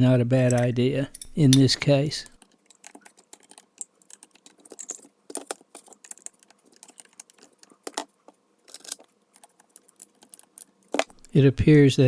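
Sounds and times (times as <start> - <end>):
light metallic clicks and taps: 0.4 - 8.1.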